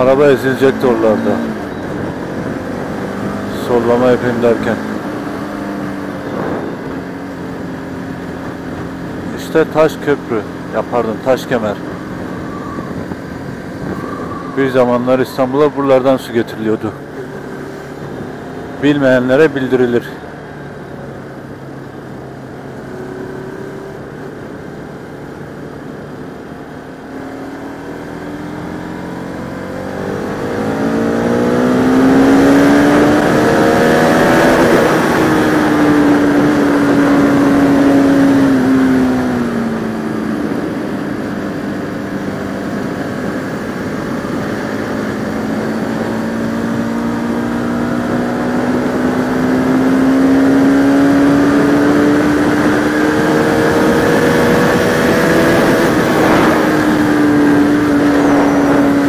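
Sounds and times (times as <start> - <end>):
motorcycle engine revving: 0.0 - 59.0
wind noise: 1.1 - 3.5, 4.8 - 7.6, 11.8 - 15.0, 50.3 - 59.0.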